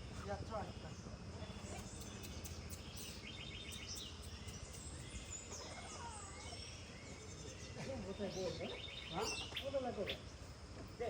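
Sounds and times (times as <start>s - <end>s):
low background noise: 0.0s - 11.0s
bird pulsed trill: 0.7s - 10.4s.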